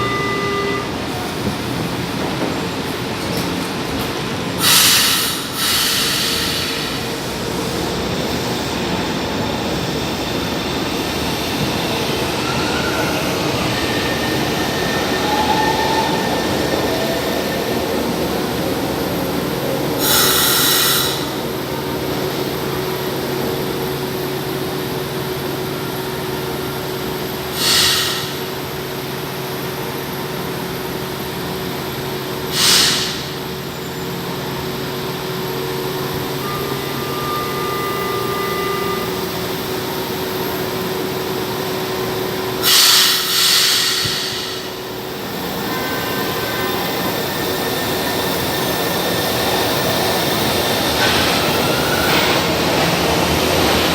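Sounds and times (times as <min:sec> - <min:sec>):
train rail noise: 0:00.0 - 0:53.9
short loud hisses: 0:04.6 - 0:07.0, 0:27.6 - 0:28.4, 0:42.6 - 0:44.7.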